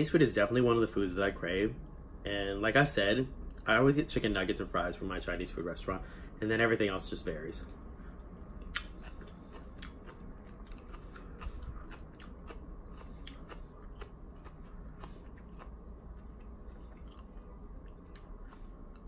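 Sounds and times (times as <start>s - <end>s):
person chewing crunchy salad: 8.1s - 19.0s.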